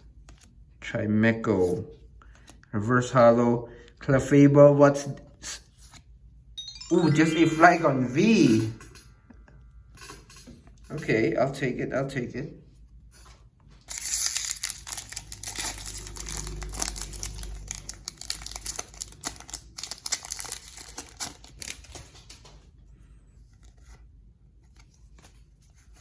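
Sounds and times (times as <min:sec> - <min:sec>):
foil wrapper crinkling and tearing: 0:13.9 - 0:22.3.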